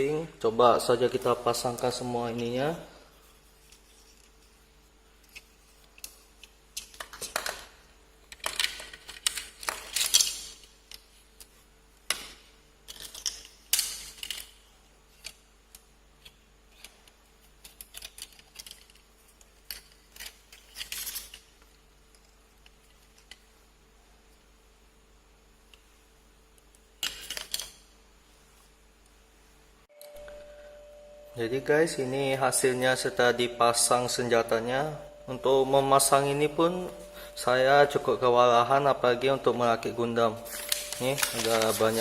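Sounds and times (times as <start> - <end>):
plastic parts clicking and scraping: 8.3 - 12.3, 12.9 - 15.4, 16.2 - 23.5.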